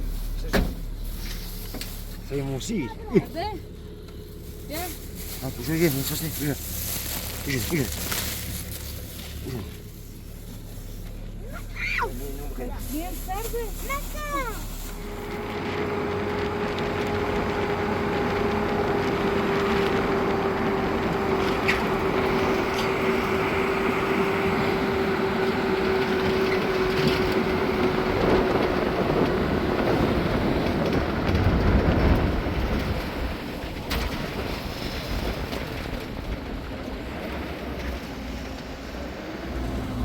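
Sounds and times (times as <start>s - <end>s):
low rumble: 0.0s - 40.0s
steady mechanical drone: 0.0s - 40.0s
hum sinking in pitch: 14.6s - 32.9s.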